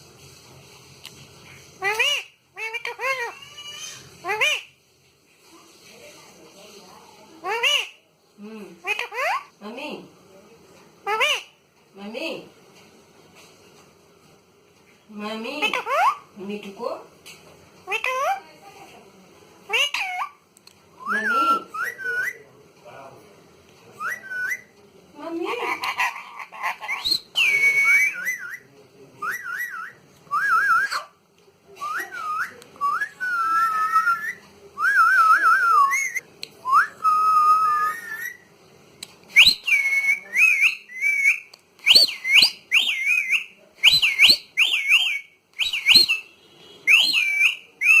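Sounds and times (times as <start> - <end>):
parrot whistling: 21.0 - 22.5, 24.0 - 24.7, 25.7 - 31.2, 31.8 - 38.5, 39.3 - 48.0
parrot sharp calls: 25.5 - 28.6, 39.4 - 48.0.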